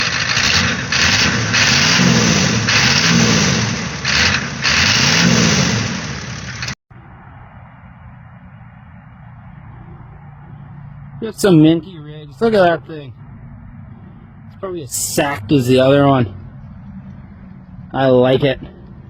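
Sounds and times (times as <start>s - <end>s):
diesel engine revving: 0.0s - 6.8s.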